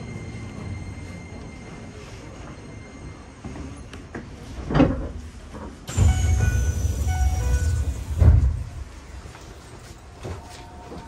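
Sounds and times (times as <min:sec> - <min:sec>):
train running rumble: 0:00.0 - 0:11.0.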